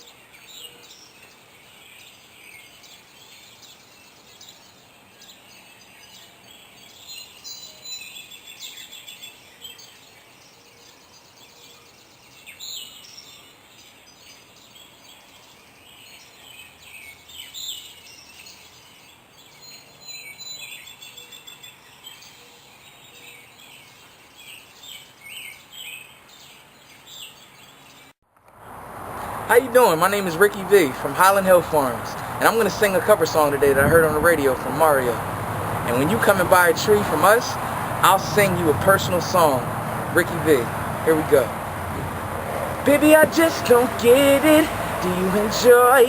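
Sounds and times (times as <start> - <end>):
wild birds singing and calling: 0.0 - 28.2, 29.1 - 46.0.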